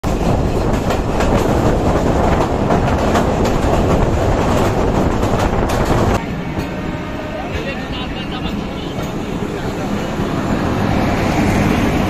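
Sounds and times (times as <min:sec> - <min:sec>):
clickety-clack over rail joints: 0:00.0 - 0:06.8, 0:07.5 - 0:10.0
train wheels rumbling on rails: 0:00.0 - 0:12.0.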